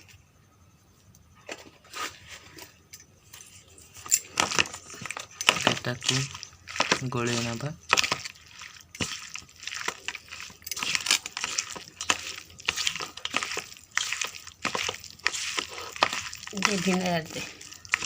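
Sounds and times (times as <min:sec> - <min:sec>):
wet coating squelching: 0:03.8 - 0:18.0.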